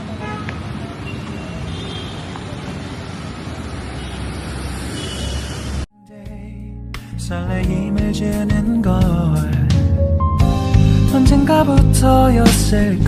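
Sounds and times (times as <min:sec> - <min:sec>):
road traffic rumble and hiss: 0:00.0 - 0:05.9.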